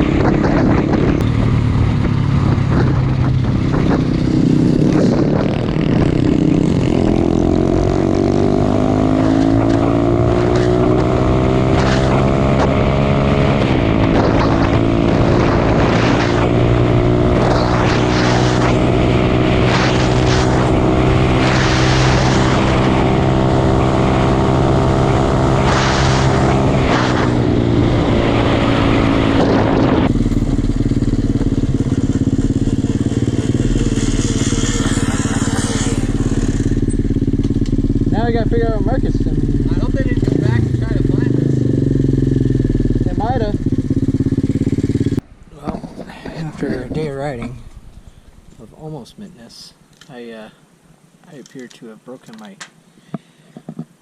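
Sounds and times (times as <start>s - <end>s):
wind on microphone: 0.0s - 38.0s
motorcycle engine revving: 0.0s - 45.2s.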